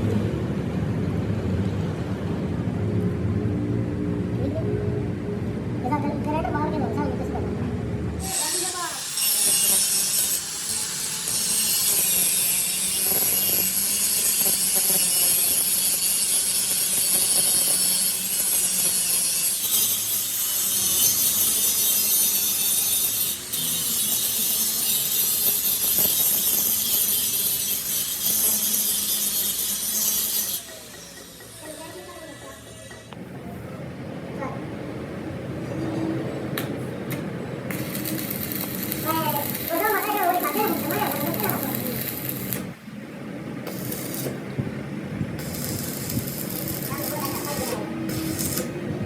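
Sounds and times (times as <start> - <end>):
power grinder grinding steel: 8.2 - 33.2, 37.7 - 42.7, 43.7 - 44.4, 45.4 - 49.0.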